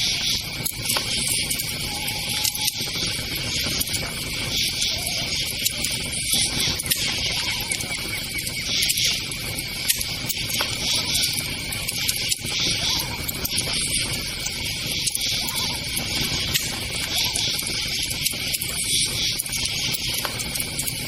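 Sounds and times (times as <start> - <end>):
crackling campfire: 0.0 - 21.0
sharp fire pops: 0.0 - 21.0
crickets chirping: 5.9 - 9.8.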